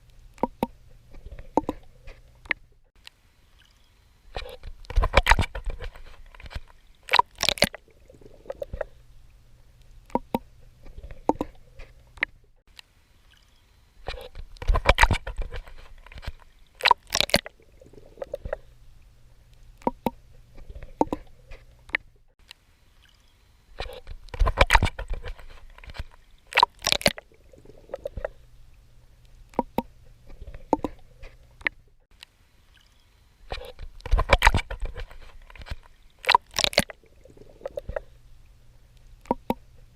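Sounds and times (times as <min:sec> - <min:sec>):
water sloshing and gurgling: 0:00.0 - 0:39.9
swimming strokes splashing: 0:03.6 - 0:09.0, 0:13.3 - 0:18.8, 0:23.0 - 0:28.4, 0:32.7 - 0:38.2.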